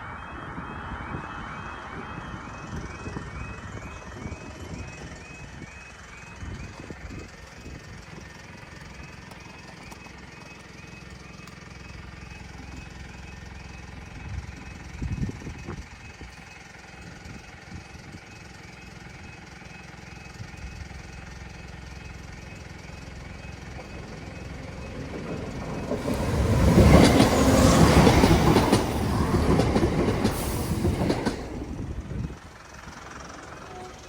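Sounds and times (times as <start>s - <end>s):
train passing: 22.1s - 34.0s
wheels clattering on rails: 23.3s - 34.0s.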